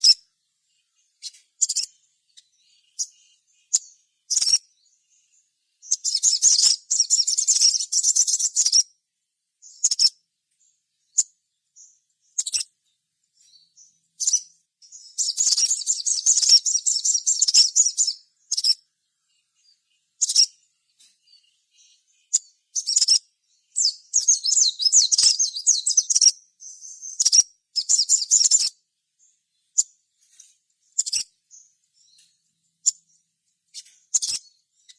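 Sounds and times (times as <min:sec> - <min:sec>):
bird twittering: 0:00.0 - 0:08.9, 0:09.6 - 0:10.2, 0:11.1 - 0:12.7, 0:13.4 - 0:34.9
bird sharp chips: 0:05.8 - 0:08.8, 0:33.7 - 0:34.6.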